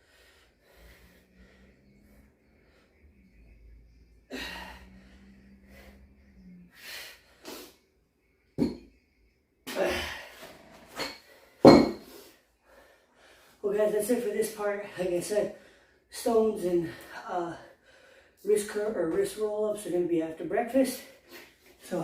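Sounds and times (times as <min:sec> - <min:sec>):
man breathing hard: 0:00.0 - 0:07.9, 0:11.2 - 0:13.6, 0:17.0 - 0:18.4.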